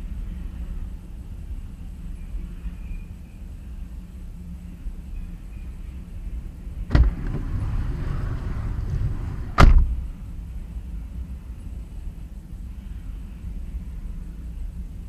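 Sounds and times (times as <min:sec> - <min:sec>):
passing freight train rumble: 0:06.6 - 0:11.6
sharp thumps: 0:06.9 - 0:10.2.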